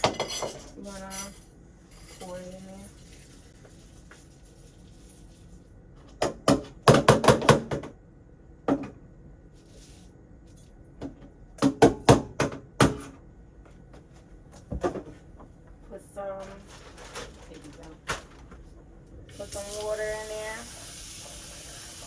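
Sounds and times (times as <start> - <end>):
container knocking on cooking pot: 6.2 - 8.0.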